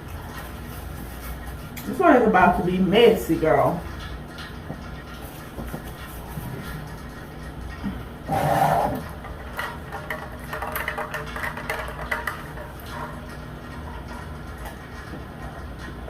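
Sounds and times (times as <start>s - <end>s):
heater hum: 0.0s - 16.0s
chewing and smacking: 3.8s - 8.3s, 9.0s - 16.0s.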